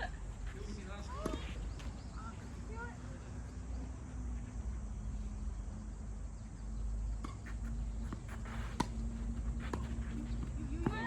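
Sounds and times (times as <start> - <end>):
steady low hum: 0.0 - 11.0
tennis balls struck and bouncing: 1.1 - 2.0, 7.2 - 11.0.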